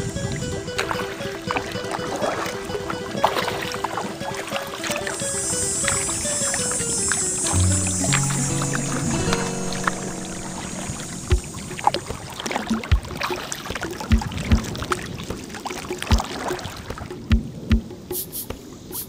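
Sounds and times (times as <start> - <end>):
paddle blades splashing: 0.0 - 17.4
water dripping and trickling: 10.9 - 17.8.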